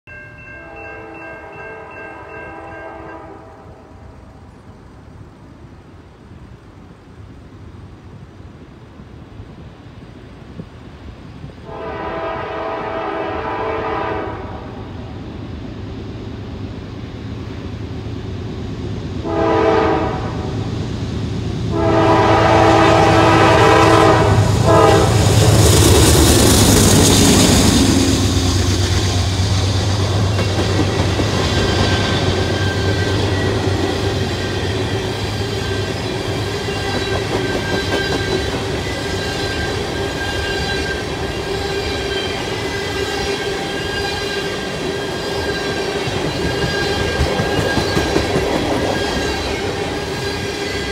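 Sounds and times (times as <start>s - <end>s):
locomotive horn blasts: 0.6s - 4.0s, 11.6s - 14.8s, 19.3s - 20.5s, 21.7s - 25.3s
train wheel clatter: 23.6s - 50.9s.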